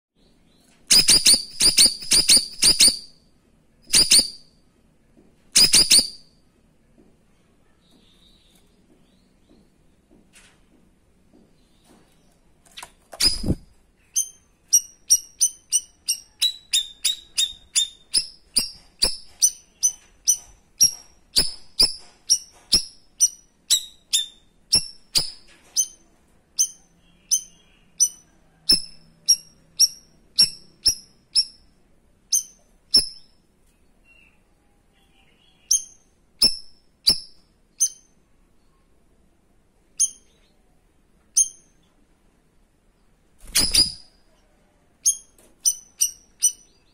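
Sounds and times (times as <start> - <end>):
bird singing short sharp high calls: 45.1 - 46.9.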